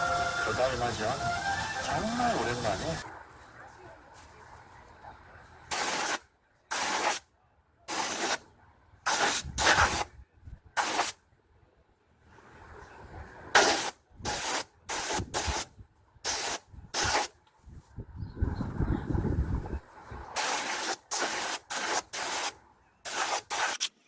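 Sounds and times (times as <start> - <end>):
short bursts of hissing: 0.0 - 3.0, 5.7 - 7.2, 7.9 - 8.4, 9.1 - 10.1, 10.8 - 11.2, 13.6 - 17.3, 20.4 - 23.9.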